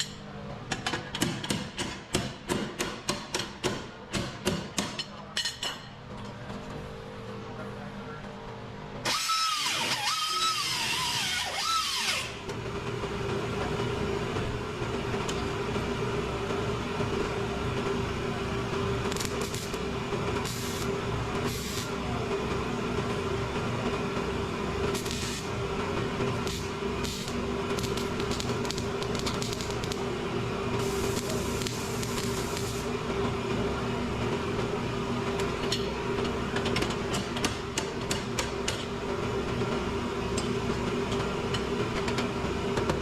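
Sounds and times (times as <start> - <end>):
handheld power tool running: 9.0 - 12.4.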